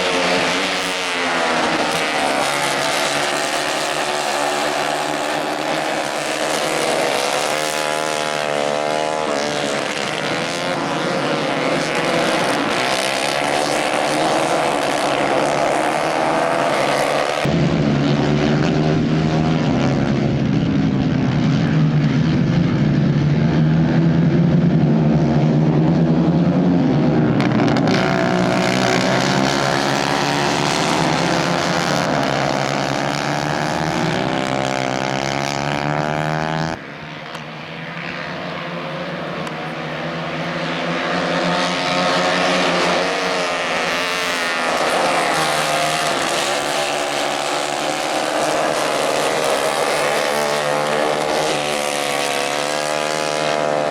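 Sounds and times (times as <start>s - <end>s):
kart racing engines: 0.0s - 53.9s.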